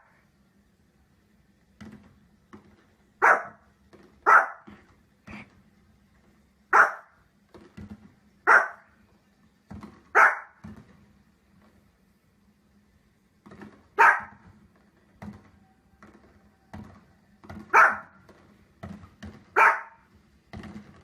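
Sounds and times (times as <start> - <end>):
dog barking: 3.2 - 3.6, 4.2 - 4.8, 6.7 - 7.2, 8.4 - 8.9, 10.1 - 10.6, 14.0 - 14.4, 17.7 - 18.2, 19.5 - 20.1.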